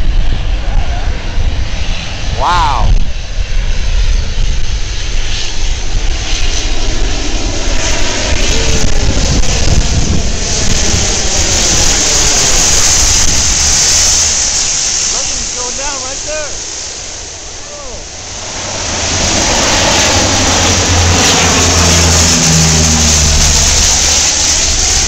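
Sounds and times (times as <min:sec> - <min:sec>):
airplane engines running: 0:00.0 - 0:25.0
water spray hissing: 0:10.9 - 0:19.7.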